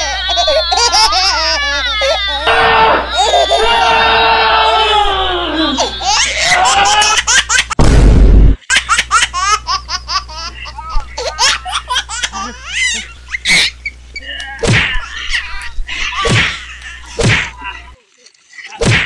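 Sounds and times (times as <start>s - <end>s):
high-pitched laughter: 0.0s - 3.9s, 4.9s - 7.8s, 8.8s - 14.0s.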